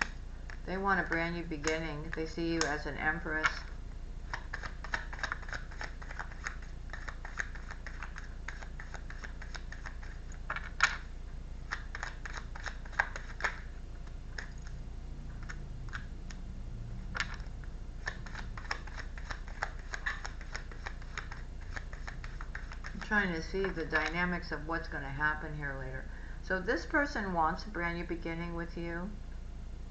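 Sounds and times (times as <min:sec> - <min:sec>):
steady low hum: 0:00.0 - 0:29.9
cards clicking on a table: 0:04.3 - 0:11.0, 0:18.0 - 0:23.0.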